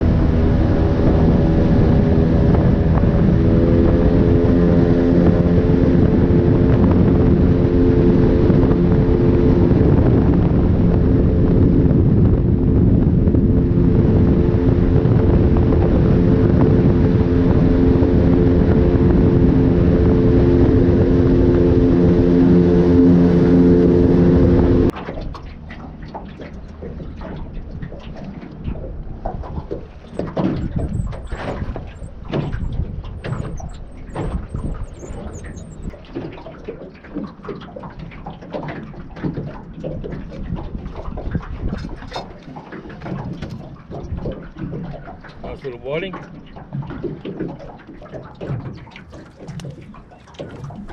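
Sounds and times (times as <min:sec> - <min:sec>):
engine running steadily: 0:00.0 - 0:36.3.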